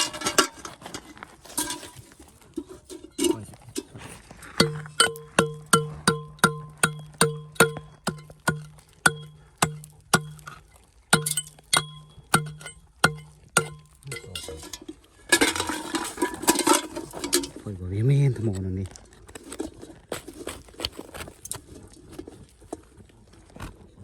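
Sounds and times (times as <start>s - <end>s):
stones rattling and scraping: 0.0s - 24.0s
hammer blows ringing on metal: 4.6s - 10.4s.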